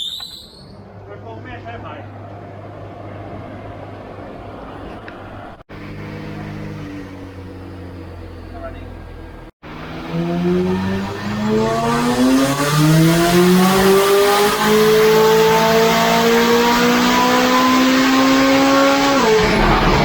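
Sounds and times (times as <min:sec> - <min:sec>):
car engine revving at full throttle: 0:05.7 - 0:20.0.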